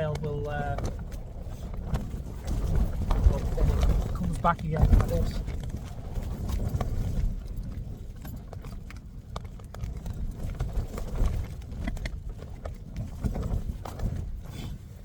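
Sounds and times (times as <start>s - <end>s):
strong wind gusting: 0.0s - 8.0s.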